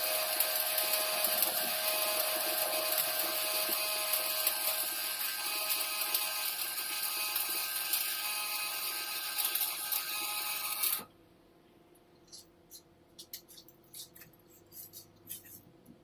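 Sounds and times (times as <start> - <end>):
welding arc crackling and hissing: 0.0 - 11.0.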